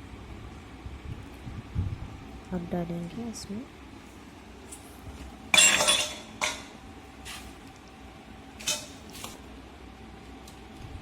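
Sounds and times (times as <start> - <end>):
utensils and dishes clinking: 5.5 - 7.4, 8.6 - 9.0.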